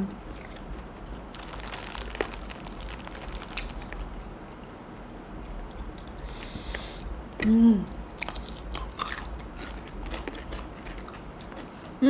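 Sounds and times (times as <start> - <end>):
person biting and chewing food: 0.3 - 4.6, 7.9 - 12.0.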